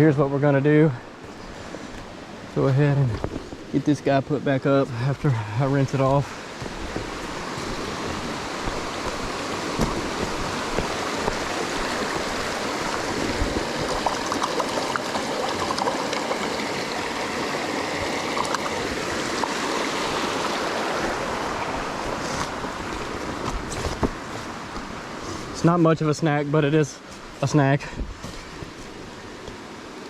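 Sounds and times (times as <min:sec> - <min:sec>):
river water running: 0:00.0 - 0:30.0
small water splashes: 0:06.1 - 0:24.0.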